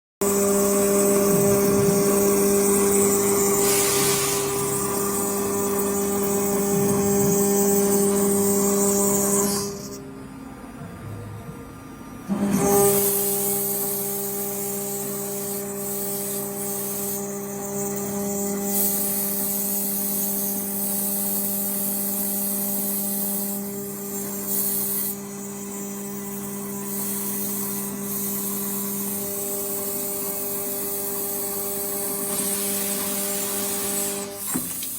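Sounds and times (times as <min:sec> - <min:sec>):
machine hum: 0:00.2 - 0:12.4
high hiss: 0:03.5 - 0:05.6.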